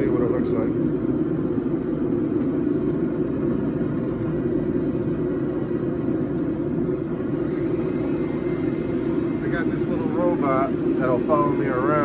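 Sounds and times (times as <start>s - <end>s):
forge rushing noise: 6.9s - 12.0s.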